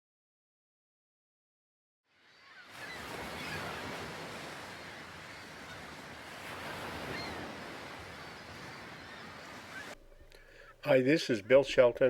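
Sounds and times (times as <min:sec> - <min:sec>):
ocean water washing: 0:02.5 - 0:10.0.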